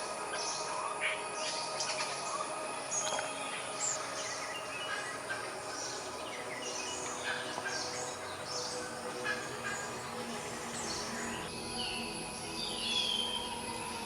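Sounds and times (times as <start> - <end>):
birds chirping and calling: 1.5 - 11.5.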